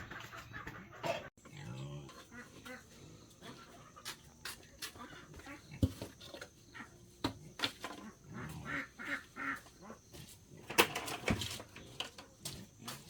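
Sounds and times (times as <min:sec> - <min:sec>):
ducks quacking: 0:00.0 - 0:05.9, 0:07.8 - 0:10.0.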